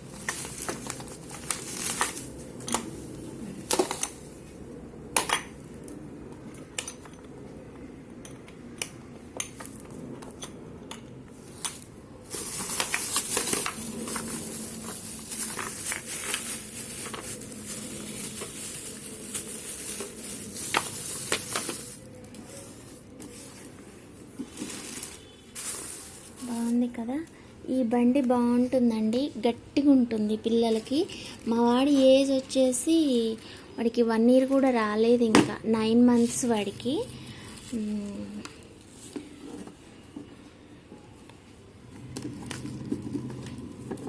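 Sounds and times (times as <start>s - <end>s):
rustling: 0.0s - 2.7s, 12.3s - 26.7s.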